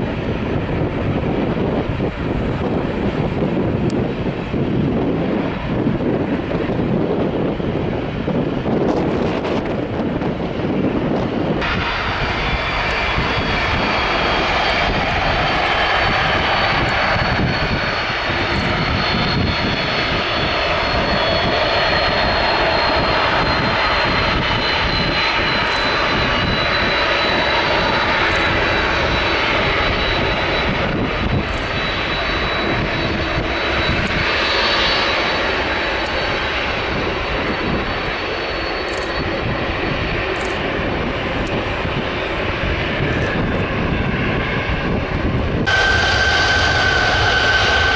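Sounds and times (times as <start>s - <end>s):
jet engines at high thrust: 0.0s - 47.9s
wind on microphone: 0.0s - 47.9s.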